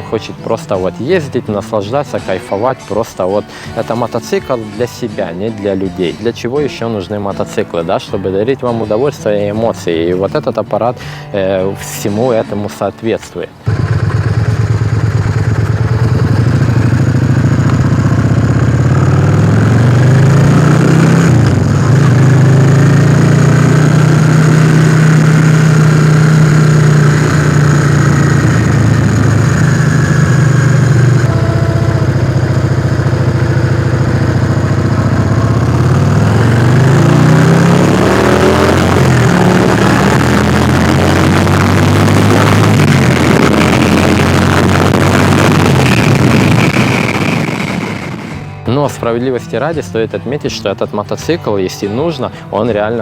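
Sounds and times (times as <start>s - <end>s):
motorcycle engine revving: 13.6s - 48.7s.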